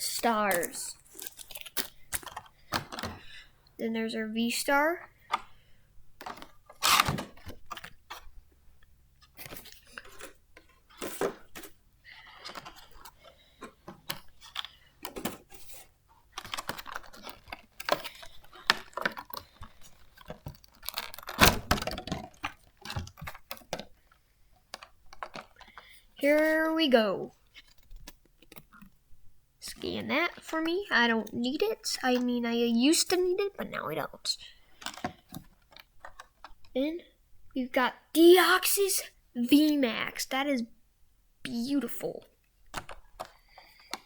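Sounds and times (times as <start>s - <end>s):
packaging clicks and rustles: 0.1s - 3.5s, 5.1s - 26.5s, 27.4s - 29.0s, 34.6s - 36.8s, 42.6s - 44.0s.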